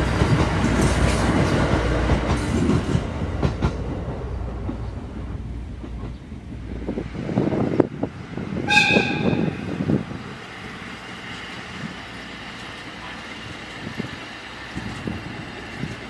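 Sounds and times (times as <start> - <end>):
train wheels clattering: 0.0 - 6.6
train horn toot: 8.6 - 9.9.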